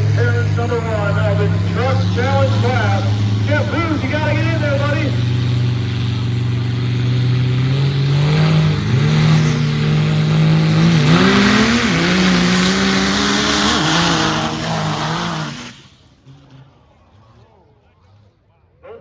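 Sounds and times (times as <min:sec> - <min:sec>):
diesel trucks accelerating hard: 0:00.0 - 0:18.9.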